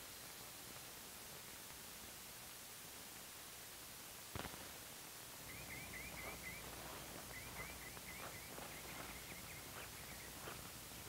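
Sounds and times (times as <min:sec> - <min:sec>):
small bird chirping: 0:05.4 - 0:10.7.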